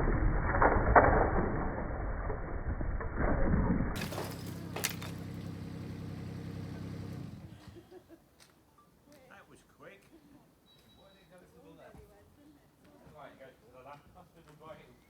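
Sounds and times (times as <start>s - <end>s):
chimney crashing down: 4.0s - 5.7s
mini digger engine running: 4.0s - 7.8s.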